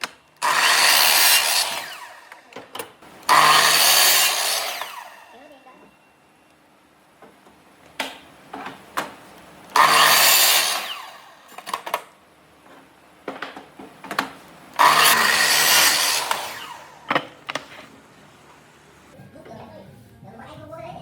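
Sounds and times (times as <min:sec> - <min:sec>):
power tool cutting wood: 0:00.0 - 0:05.6, 0:09.7 - 0:12.0, 0:14.7 - 0:17.6.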